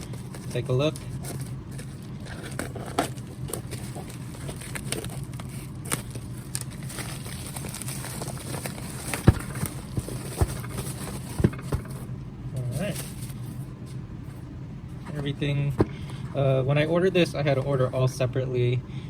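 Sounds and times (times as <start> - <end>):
packaging crackling: 0.0 - 11.4
steady low hum: 0.0 - 19.0.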